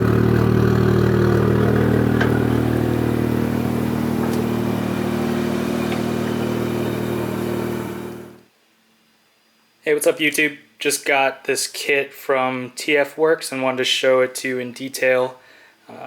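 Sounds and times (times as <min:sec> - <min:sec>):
car engine droning steadily: 0:00.0 - 0:08.4.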